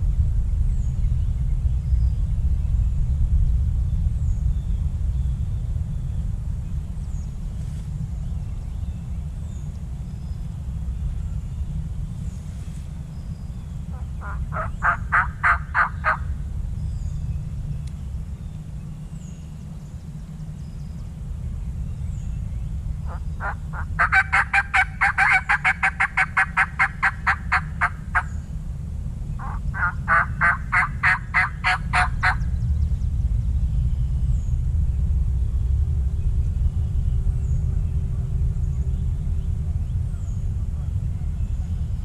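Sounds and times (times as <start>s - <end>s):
steady low rumble: 0.0s - 42.0s
turkey yelping: 13.9s - 16.3s, 23.1s - 28.3s, 29.4s - 32.4s.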